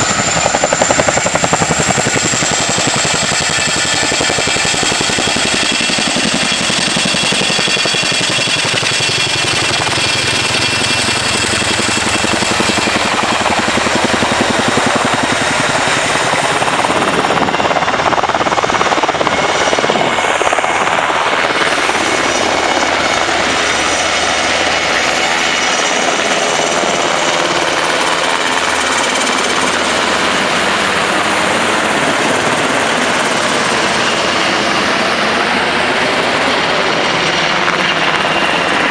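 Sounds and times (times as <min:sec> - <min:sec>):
helicopter rotor chop: 0:00.0 - 0:38.9
high turbine whine: 0:00.0 - 0:38.9.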